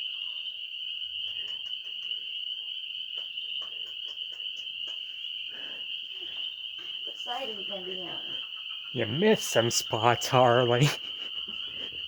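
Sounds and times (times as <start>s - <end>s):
crickets trilling: 0.0s - 12.0s
faint scattered clicks: 1.2s - 2.3s, 3.1s - 5.2s.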